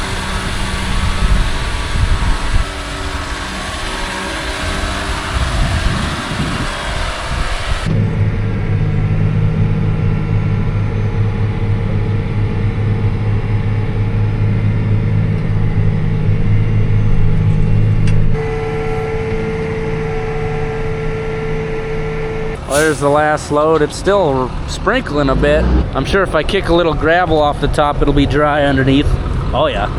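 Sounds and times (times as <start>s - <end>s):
tractor engine running: 0.0s - 29.9s.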